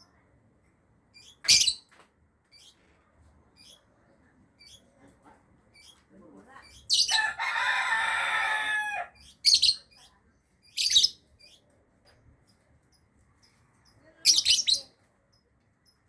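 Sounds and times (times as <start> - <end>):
lovebird chattering and chirping: 1.1 - 1.9, 3.6 - 3.8, 4.6 - 4.9, 5.7 - 6.0, 6.6 - 7.4, 9.2 - 11.6, 12.4 - 16.0.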